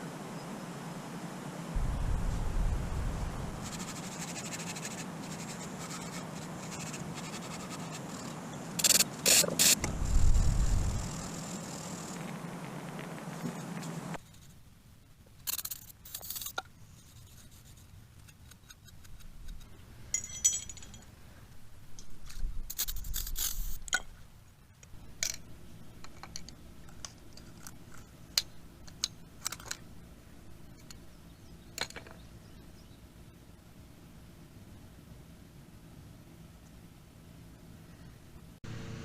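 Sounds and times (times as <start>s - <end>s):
metal tools clinking: 20.1s - 21.1s.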